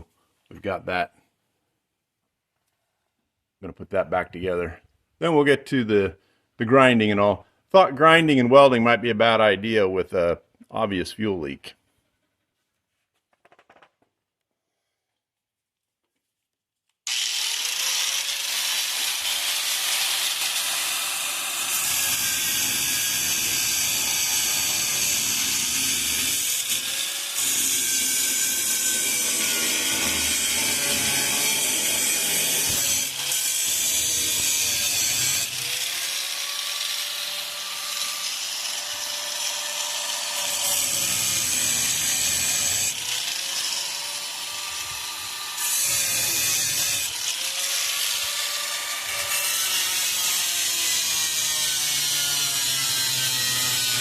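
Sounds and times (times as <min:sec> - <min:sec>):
angle grinder grinding steel: 0:17.1 - 0:54.0.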